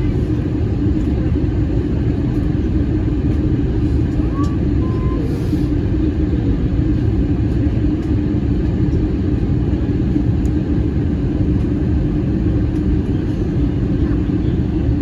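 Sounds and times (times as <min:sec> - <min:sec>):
airplane engine rumble: 0:00.0 - 0:15.0
constant hum: 0:00.0 - 0:15.0.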